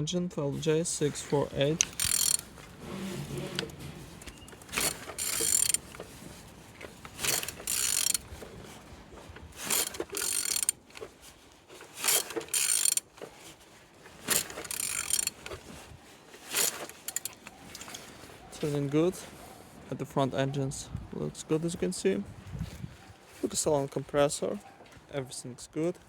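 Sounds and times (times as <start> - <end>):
engine turned by hand clicking: 1.1 - 18.3.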